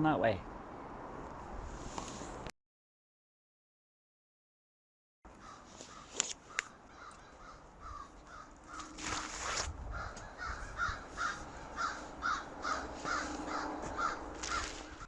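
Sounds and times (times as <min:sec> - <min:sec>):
bird giving harsh calls: 0:05.4 - 0:15.0.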